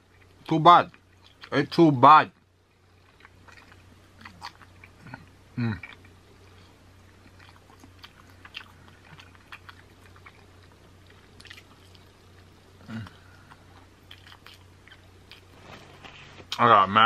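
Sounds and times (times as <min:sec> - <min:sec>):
faint low hum: 0:00.0 - 0:17.0
chewing and wet mouth smacks: 0:00.1 - 0:01.5, 0:02.8 - 0:05.2, 0:05.8 - 0:15.5.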